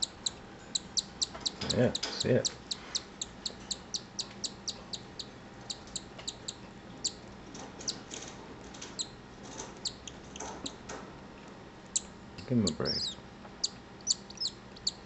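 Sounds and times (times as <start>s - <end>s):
cockatiel chick cheeping: 0.0s - 7.2s, 9.8s - 10.2s, 12.7s - 15.0s.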